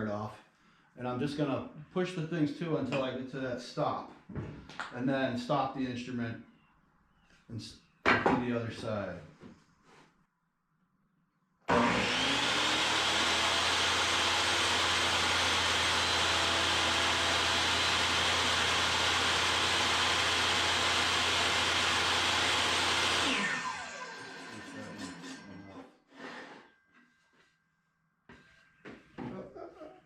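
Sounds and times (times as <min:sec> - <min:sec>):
table saw motor running: 0:11.7 - 0:25.5.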